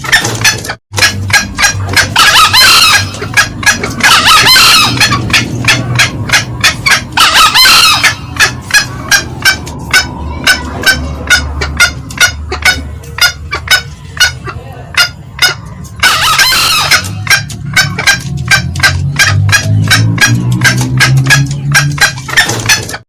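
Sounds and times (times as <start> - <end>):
junglefowl cackling: 0.0 - 23.0
rooster crowing: 4.1 - 5.2, 7.2 - 8.3, 16.0 - 17.0.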